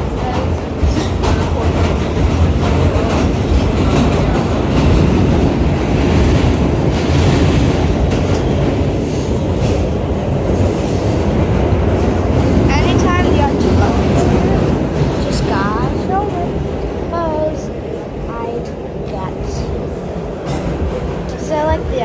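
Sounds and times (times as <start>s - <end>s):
subway train rumbling: 0.0s - 22.0s.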